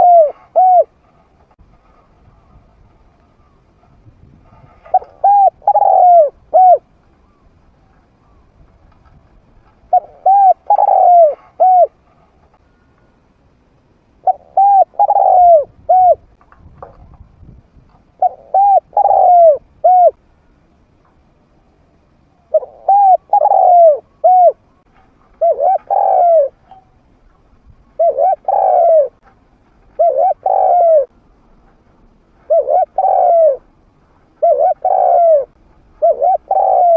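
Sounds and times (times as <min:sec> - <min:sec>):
dove cooing: 0:00.0 - 0:01.0, 0:04.6 - 0:07.5, 0:09.9 - 0:12.0, 0:14.2 - 0:16.3, 0:18.2 - 0:20.2, 0:22.4 - 0:24.8, 0:25.4 - 0:26.8, 0:27.9 - 0:29.2, 0:29.9 - 0:31.1, 0:32.4 - 0:33.7, 0:34.4 - 0:36.9.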